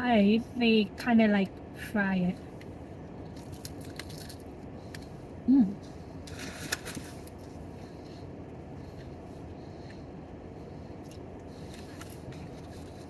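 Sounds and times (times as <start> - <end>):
person humming: 5.5 - 5.8.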